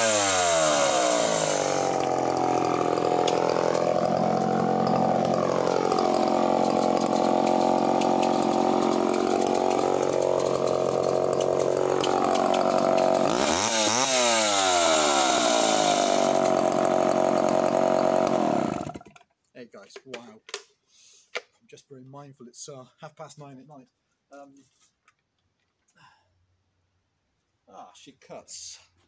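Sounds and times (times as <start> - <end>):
chainsaw running at full throttle: 0.0 - 19.1.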